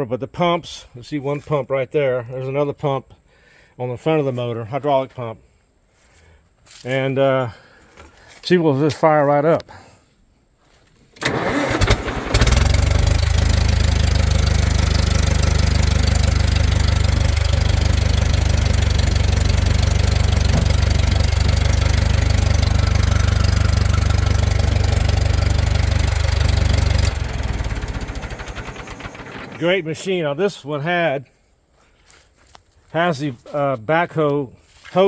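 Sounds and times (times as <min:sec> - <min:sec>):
engine idling: 0:11.2 - 0:29.9
engine shutting off: 0:11.2 - 0:30.0.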